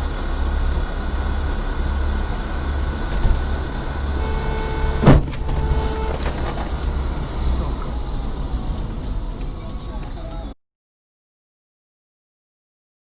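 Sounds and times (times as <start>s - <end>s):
vehicle engine and road rumble: 0.0s - 10.6s
steady horn tone: 1.3s - 7.7s
sharp loud knock: 5.0s - 5.6s.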